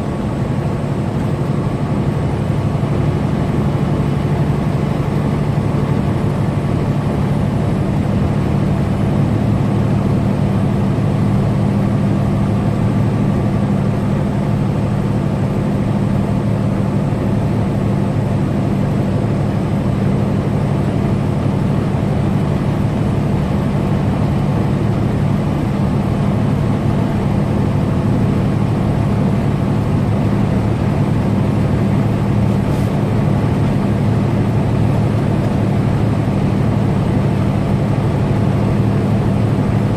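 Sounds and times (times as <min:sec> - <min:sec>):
truck diesel engine drone: 0:00.0 - 0:39.9.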